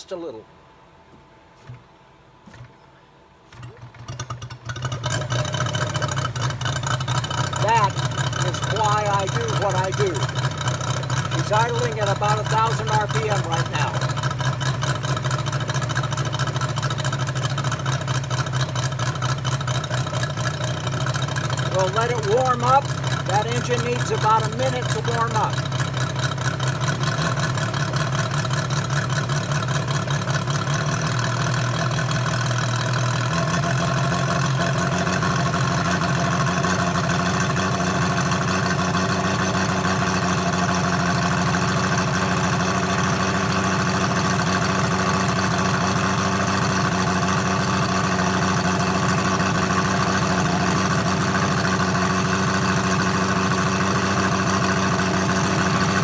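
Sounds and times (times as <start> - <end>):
radial engine idling: 3.5 - 56.0.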